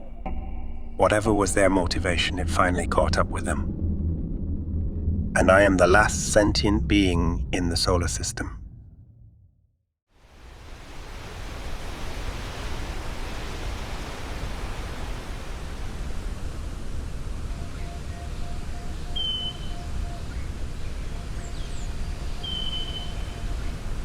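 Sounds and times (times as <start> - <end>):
wind rushing: 1.0 - 9.5.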